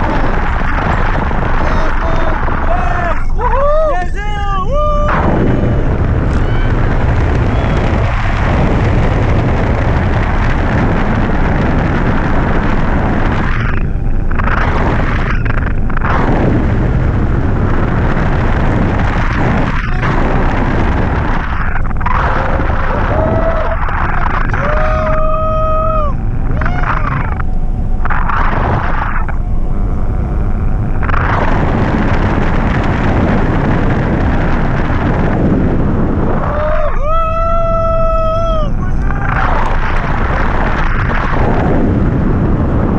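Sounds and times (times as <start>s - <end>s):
wind buffeting microphone: 0.0s - 42.9s
short pitched tones: 23.8s - 32.3s.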